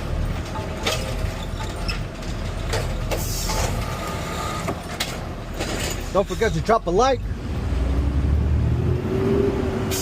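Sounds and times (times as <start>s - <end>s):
clunks and knocks: 0.2s - 3.9s.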